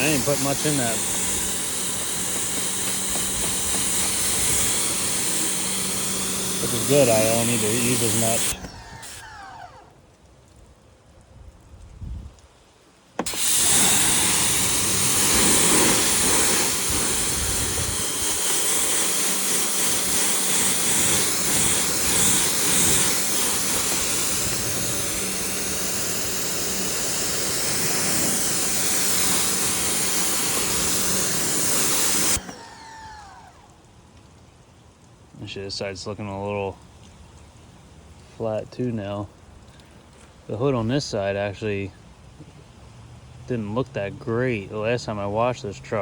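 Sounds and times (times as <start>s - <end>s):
pressure washer spraying water: 0.0s - 9.9s, 13.2s - 33.7s.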